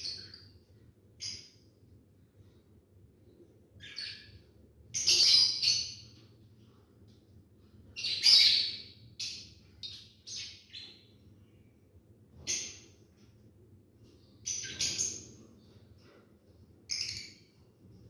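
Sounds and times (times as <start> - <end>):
lovebirds shrill chirping: 5.0 - 6.0, 8.0 - 10.9.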